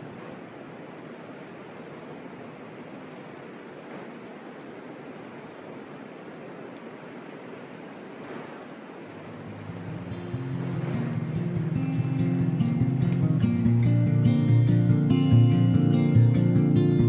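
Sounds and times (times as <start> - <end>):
small birds high thin calls: 0.0 - 0.4, 3.8 - 5.4, 7.9 - 8.7, 9.3 - 13.4
outdoor background hiss: 0.0 - 17.0
music: 9.8 - 17.0.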